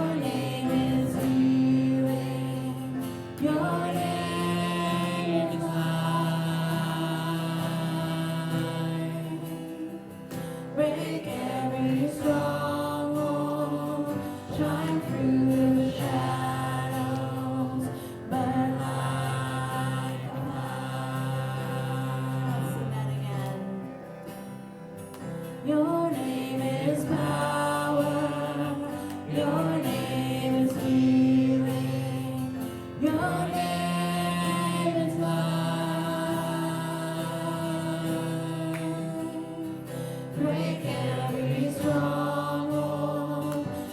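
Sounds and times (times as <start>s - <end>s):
gospel choir singing: 0.0s - 24.6s, 25.2s - 43.9s.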